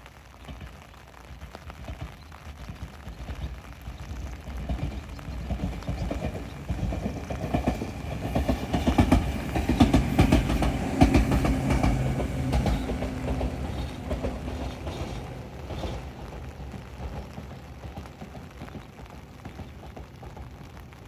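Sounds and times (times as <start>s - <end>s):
train wheels clacking on rails: 1.8s - 21.0s
low train motor hum: 4.8s - 20.0s.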